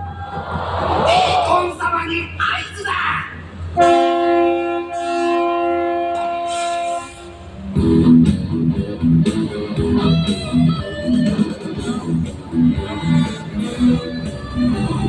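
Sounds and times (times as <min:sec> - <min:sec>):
long horn blast: 0:03.8 - 0:07.6
rock music with electric guitar: 0:07.8 - 0:15.0.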